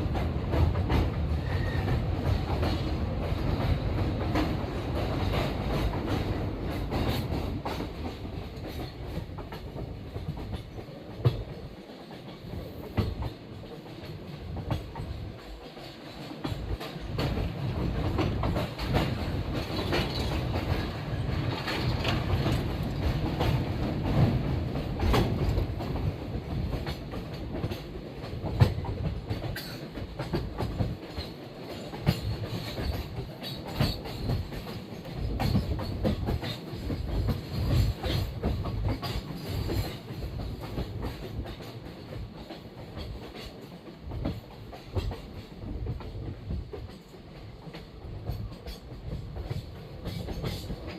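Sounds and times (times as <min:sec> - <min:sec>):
train rumbling on rails: 0:00.0 - 0:50.9
wheels clattering over track: 0:18.1 - 0:24.4.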